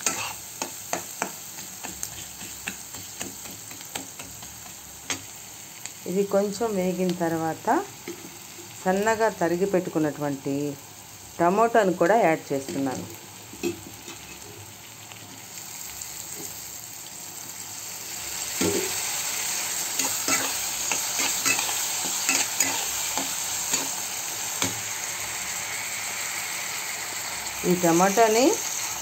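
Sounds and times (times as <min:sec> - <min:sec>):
spatula scraping a pan: 0:00.0 - 0:05.3, 0:13.6 - 0:14.7, 0:19.8 - 0:24.0
vegetables sizzling in oil: 0:00.0 - 0:29.0.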